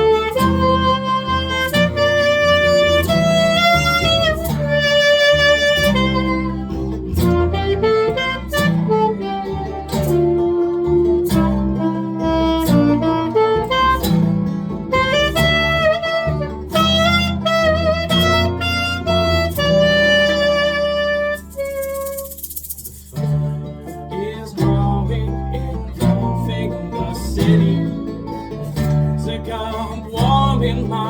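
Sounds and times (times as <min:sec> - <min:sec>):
reedy melody line: 0:00.0 - 0:31.0
strummed acoustic guitar: 0:00.0 - 0:31.0
sharp percussive stroke: 0:21.4 - 0:23.4.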